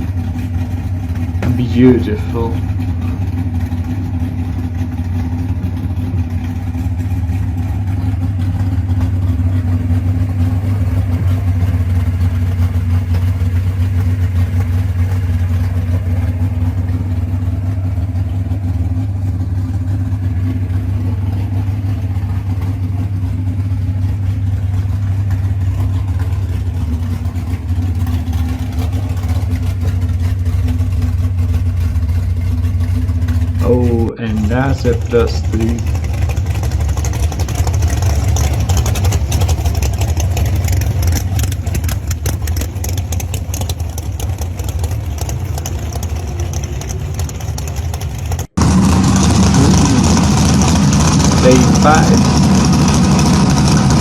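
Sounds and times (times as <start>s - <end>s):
car engine running at low revs: 0.0s - 54.0s.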